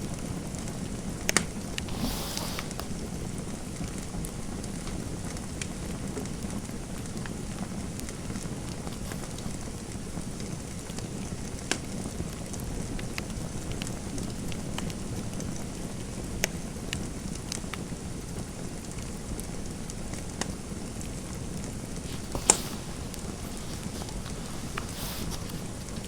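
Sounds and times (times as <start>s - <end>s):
fireplace fire crackling: 0.0s - 26.0s.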